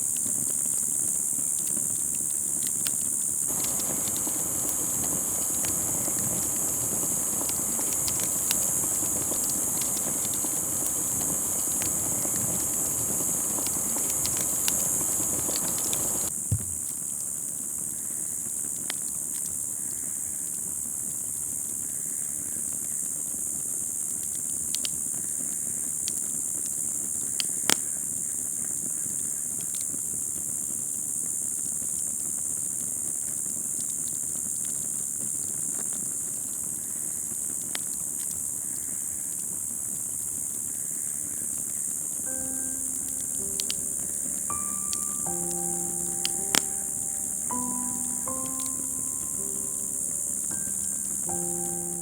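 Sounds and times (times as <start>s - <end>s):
fire hissing: 3.5s - 16.7s, 42.3s - 52.0s
wood fire crackling: 3.5s - 16.7s, 42.3s - 52.0s.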